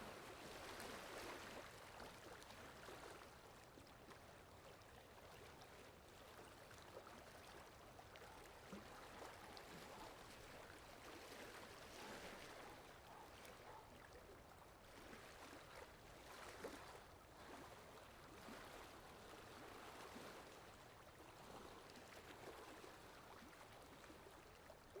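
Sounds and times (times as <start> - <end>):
faint running water: 0.0 - 18.2.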